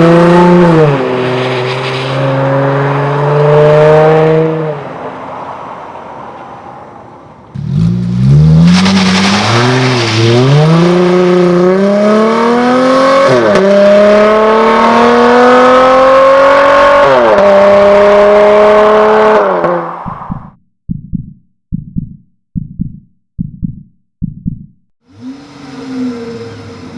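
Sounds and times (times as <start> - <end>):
car engine accelerating: 7.6 - 20.6.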